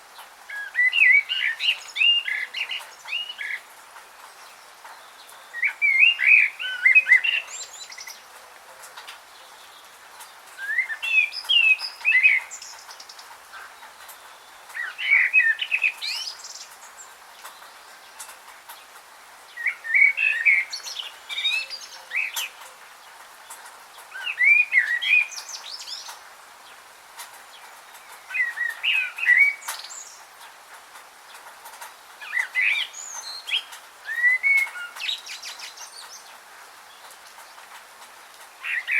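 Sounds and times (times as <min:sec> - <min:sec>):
faint steady hiss: 0:00.0 - 0:38.9
songbird warbling: 0:05.0 - 0:08.3, 0:10.6 - 0:13.8, 0:14.4 - 0:16.8, 0:19.5 - 0:22.8, 0:24.1 - 0:26.2, 0:27.9 - 0:30.2, 0:32.2 - 0:36.4, 0:38.6 - 0:38.9.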